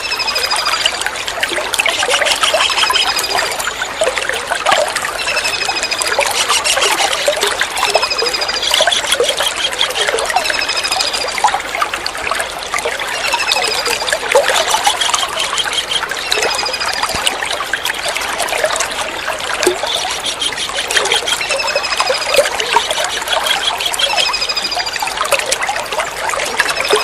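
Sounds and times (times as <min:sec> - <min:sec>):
water trickling: 0:00.0 - 0:27.0
kingfisher calling rapid high notes: 0:05.2 - 0:11.3, 0:19.7 - 0:25.2.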